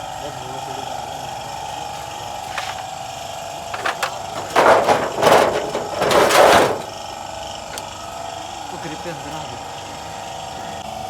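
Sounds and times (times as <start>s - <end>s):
loud rasping bursts: 3.7s - 7.0s.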